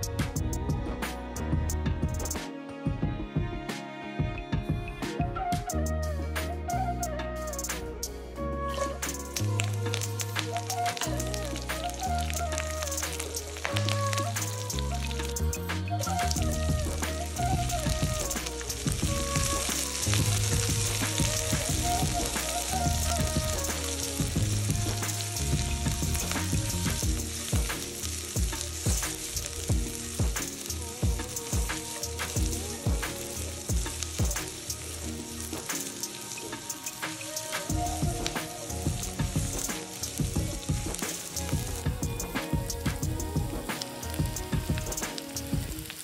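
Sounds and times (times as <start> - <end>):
food sizzling in a wok: 5.6 - 46.0.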